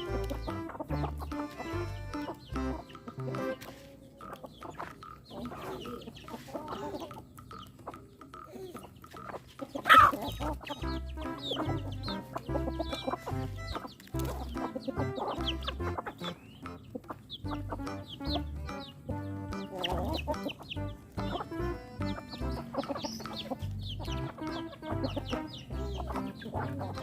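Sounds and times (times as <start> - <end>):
chickens clucking and calling: 0.0 - 27.0
music with low beat: 0.0 - 27.0.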